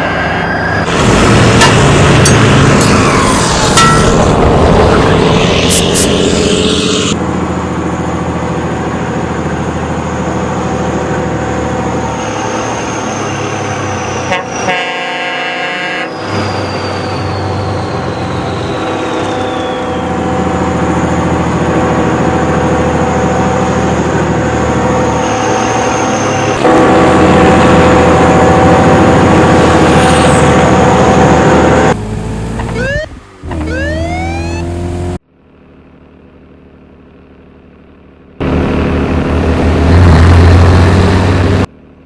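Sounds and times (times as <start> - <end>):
truck engine running: 0.0 - 14.0, 17.0 - 42.0
truck horn blast: 14.2 - 16.2, 26.4 - 31.0.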